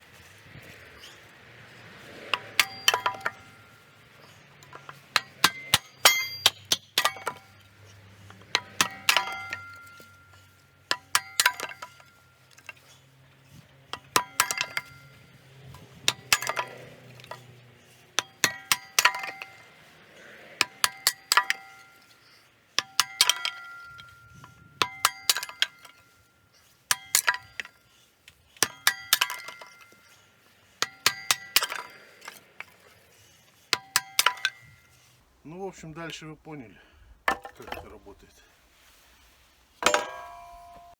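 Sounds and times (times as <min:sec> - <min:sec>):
wood splitting knocks with metallic ring: 0:02.3 - 0:12.9, 0:13.6 - 0:19.9, 0:20.6 - 0:27.9, 0:28.6 - 0:30.1, 0:30.8 - 0:32.9, 0:33.8 - 0:35.1, 0:37.3 - 0:37.9, 0:39.8 - 0:40.9.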